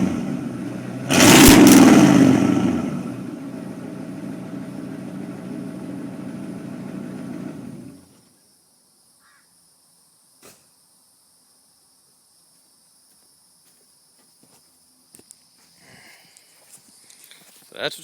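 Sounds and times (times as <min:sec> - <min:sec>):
diesel engine idling: 0:00.0 - 0:08.1.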